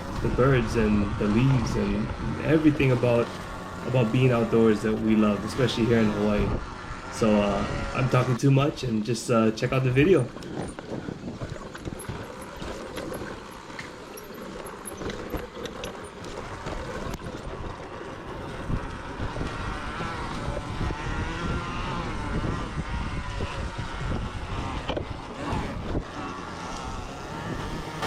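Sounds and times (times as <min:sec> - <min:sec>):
electric motor whine: 0:00.0 - 0:08.7, 0:10.0 - 0:28.0
rough rumble of tyres: 0:00.0 - 0:28.0.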